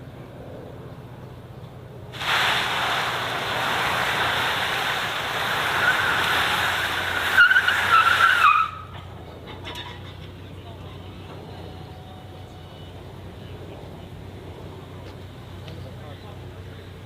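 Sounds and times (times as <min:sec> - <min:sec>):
car tyres screeching: 0:02.2 - 0:10.2.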